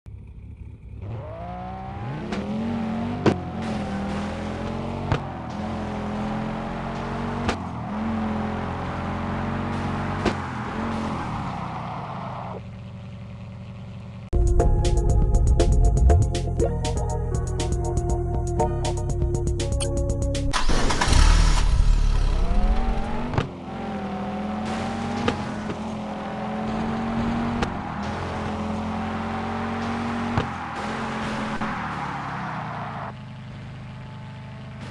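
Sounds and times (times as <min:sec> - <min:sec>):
race car engine revving: 0:00.2 - 0:14.3, 0:20.5 - 0:34.9.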